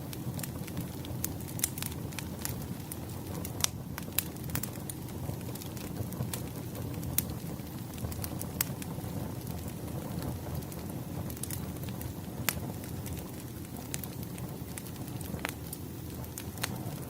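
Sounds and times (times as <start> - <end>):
bonfire burning with low rush: 0.0 - 17.0
fire crackles and pops: 0.0 - 17.0.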